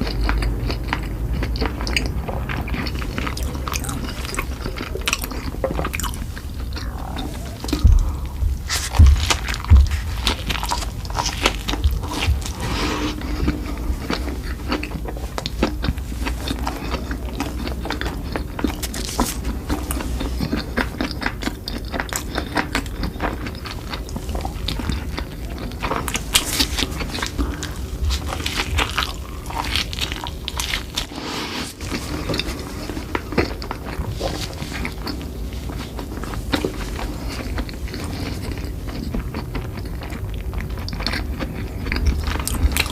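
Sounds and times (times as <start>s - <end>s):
crunchy bites: 0.0s - 13.5s
person chewing crunchy food: 0.0s - 42.9s.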